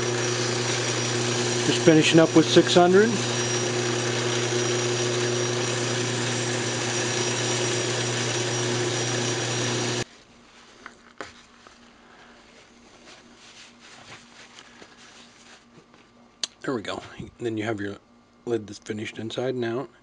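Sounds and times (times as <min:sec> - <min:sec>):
wood lathe motor hum: 0:00.0 - 0:10.1.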